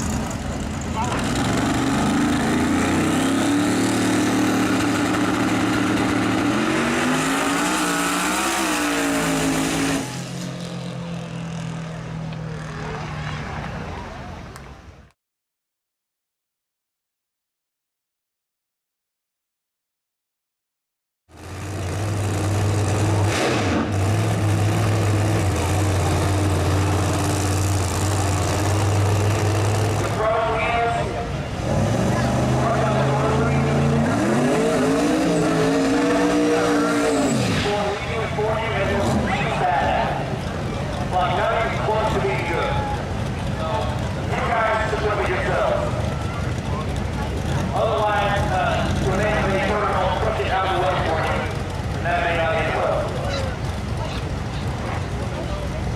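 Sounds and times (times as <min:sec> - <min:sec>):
drag race car engine: 0:00.0 - 0:14.7, 0:21.3 - 0:55.9
steady engine drone: 0:21.3 - 0:55.9.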